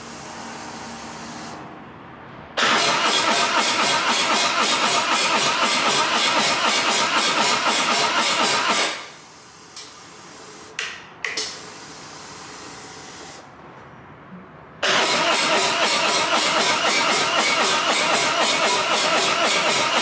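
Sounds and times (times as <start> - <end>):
motorcycle starter cranking: 2.6 - 9.0, 14.8 - 20.0.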